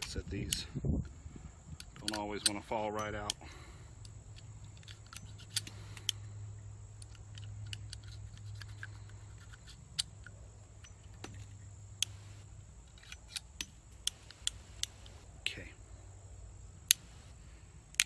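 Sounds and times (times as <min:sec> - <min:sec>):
steady low hum: 0:00.0 - 0:18.0
revolver metallic clicking: 0:01.7 - 0:15.3, 0:16.8 - 0:17.1.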